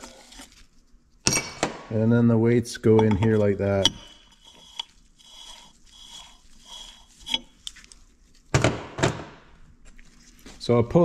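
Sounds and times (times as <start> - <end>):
scraping noises: 0.0 - 1.0, 2.5 - 8.5.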